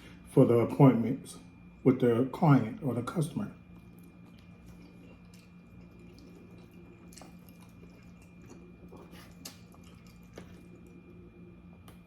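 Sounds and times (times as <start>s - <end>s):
low electrical hum: 0.0s - 12.0s
person chewing: 3.6s - 12.0s.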